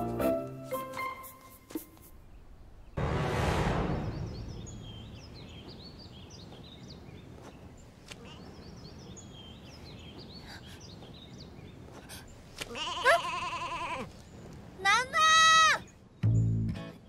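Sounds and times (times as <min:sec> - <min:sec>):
small birds chirping: 0:03.9 - 0:17.0.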